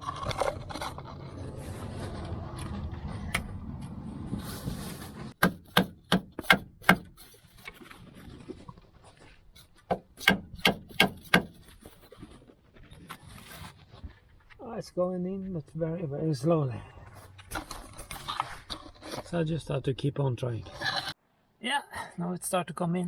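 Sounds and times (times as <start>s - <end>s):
metal scraping and rubbing: 0.0s - 14.1s
sharp hammer blows on metal: 10.2s - 11.6s.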